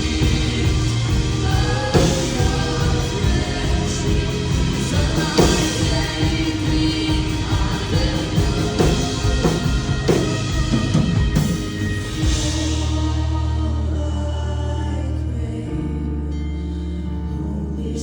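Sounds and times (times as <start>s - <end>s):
drum hits: 0.0s - 13.2s
band playing sustained chords: 0.0s - 18.0s.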